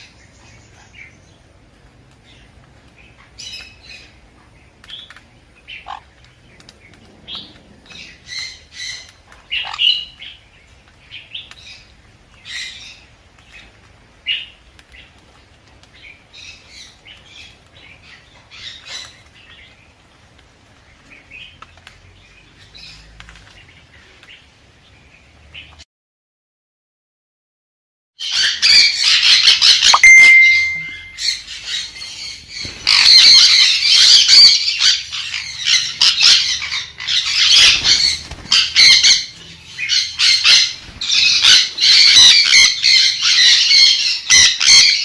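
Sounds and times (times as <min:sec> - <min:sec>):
parrot squawking and chirping: 0:05.6 - 0:06.2, 0:07.3 - 0:10.4, 0:28.2 - 0:45.0.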